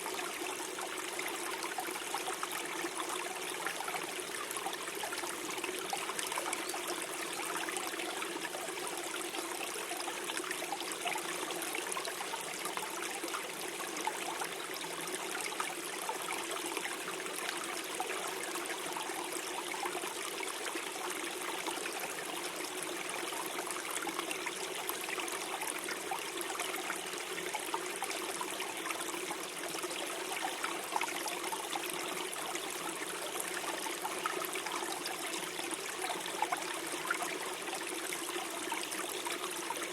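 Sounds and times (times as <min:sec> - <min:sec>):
forest stream gurgling over stones: 0:00.0 - 0:39.9.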